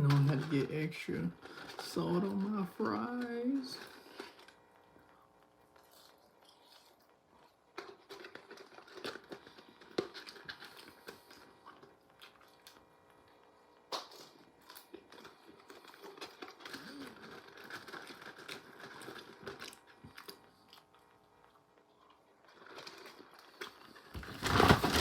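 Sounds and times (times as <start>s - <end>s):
faint steady hum: 0.0s - 25.0s
person chewing food: 3.8s - 24.1s
wrapper rustling: 24.2s - 25.0s.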